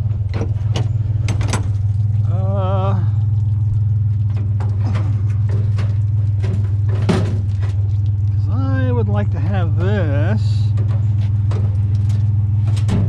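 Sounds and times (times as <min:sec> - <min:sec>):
truck engine idling: 0:00.0 - 0:13.0
scrap metal clanking: 0:04.3 - 0:07.9, 0:10.7 - 0:13.0.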